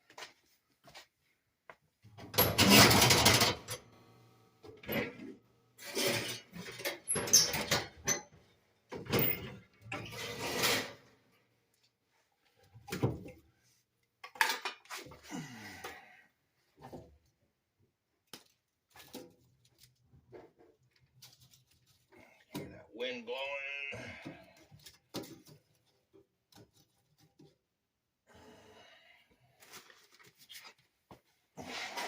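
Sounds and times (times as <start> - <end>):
metal clattering and scraping: 10.0 - 11.1.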